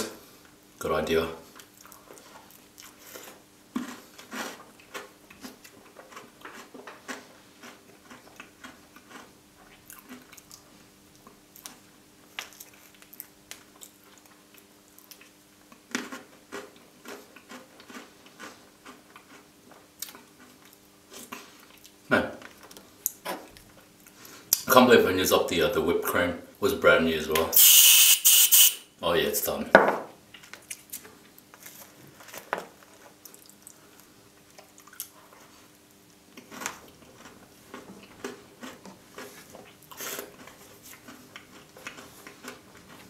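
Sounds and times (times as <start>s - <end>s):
wet chewing and lip smacks: 1.6s - 22.0s, 33.2s - 35.4s, 36.3s - 43.0s.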